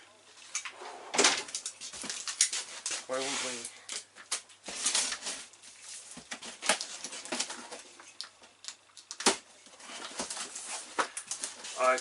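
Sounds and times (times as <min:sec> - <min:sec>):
cardboard and packaging rustling: 0:01.2 - 0:12.0
packing tape tearing: 0:01.4 - 0:05.5, 0:06.2 - 0:07.8.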